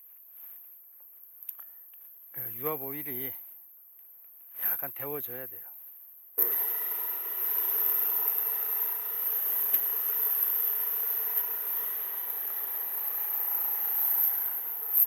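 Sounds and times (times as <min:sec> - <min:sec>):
log splitter engine running: 0:06.4 - 0:15.0.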